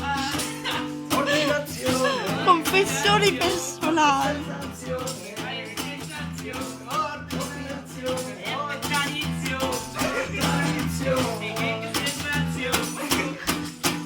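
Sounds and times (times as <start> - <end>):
person singing: 0.0 - 4.9
acoustic guitar strumming: 0.0 - 14.0.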